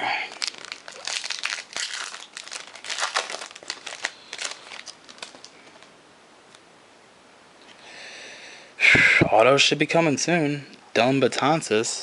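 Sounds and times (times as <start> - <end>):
foil wrapper crinkling and tearing: 0.2 - 5.9.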